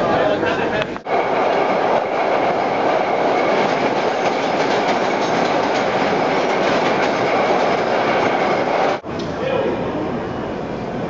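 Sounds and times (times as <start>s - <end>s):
subway train rumbling: 0.0s - 11.0s
wheels clicking over rail joints: 1.5s - 9.3s.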